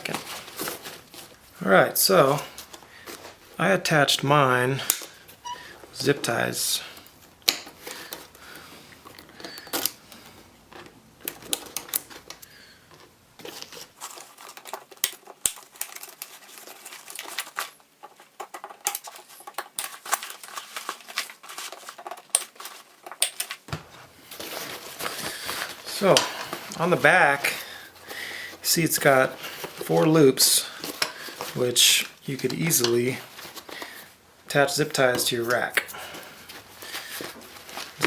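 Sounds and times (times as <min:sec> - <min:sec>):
bag rustling: 0:00.0 - 0:01.6, 0:13.4 - 0:34.3, 0:35.5 - 0:38.0.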